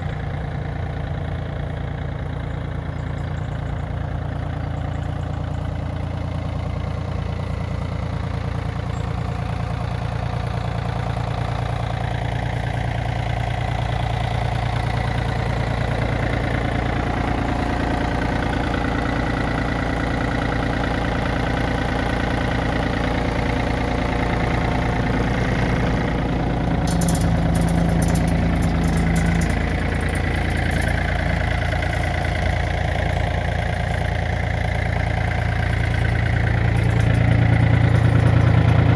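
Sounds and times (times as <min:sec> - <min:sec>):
tractor diesel engine running: 0:00.0 - 0:38.9
rattling: 0:20.3 - 0:38.9.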